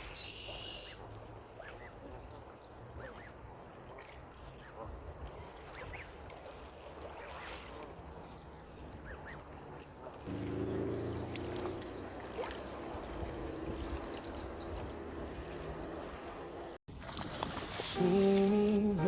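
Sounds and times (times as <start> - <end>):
small birds chirping: 9.0 - 9.7, 10.3 - 12.3, 13.3 - 14.9, 15.8 - 16.6.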